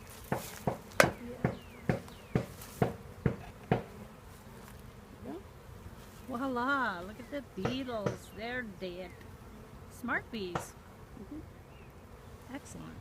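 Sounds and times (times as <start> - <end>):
bees buzzing faintly: 0.0 - 13.0
sharp knocks: 0.3 - 3.9.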